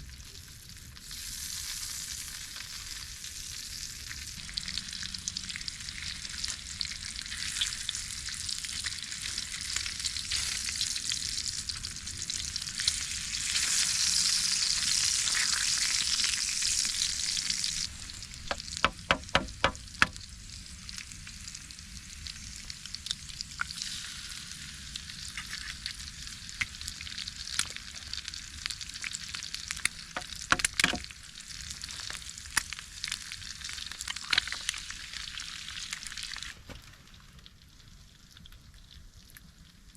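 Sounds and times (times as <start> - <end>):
food sizzling in a pan: 0.0 - 36.7
sharp taps: 18.5 - 20.2.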